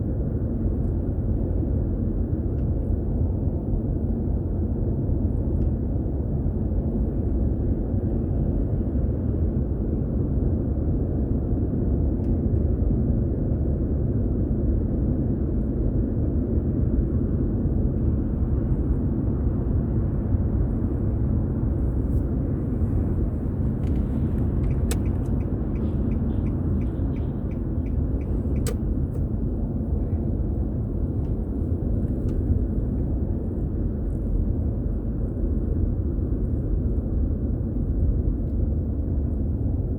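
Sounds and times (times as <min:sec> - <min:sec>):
car road and engine rumble: 0:00.0 - 0:39.9
light ticks: 0:23.8 - 0:29.2
sharp clicks: 0:24.6 - 0:28.9.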